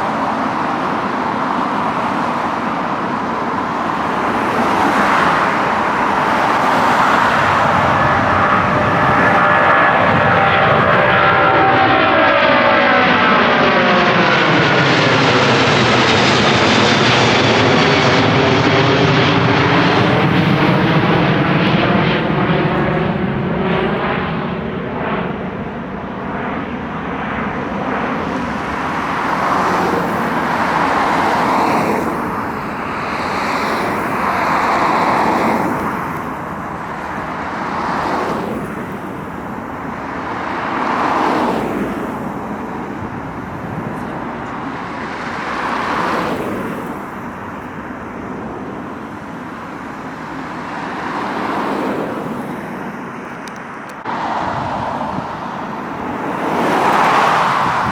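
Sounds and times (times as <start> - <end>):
jet airliner passing overhead: 0.0 - 57.9.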